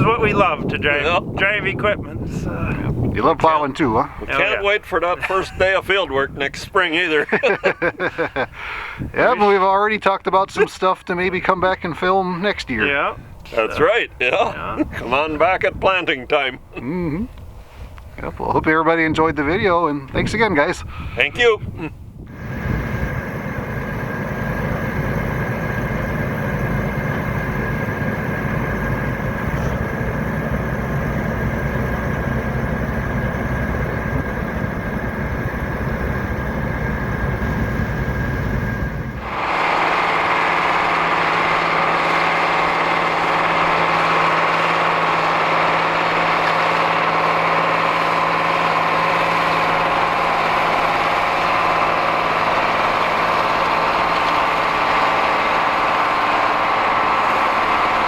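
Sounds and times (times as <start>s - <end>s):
tractor diesel engine running: 0.0s - 7.2s, 22.3s - 58.0s.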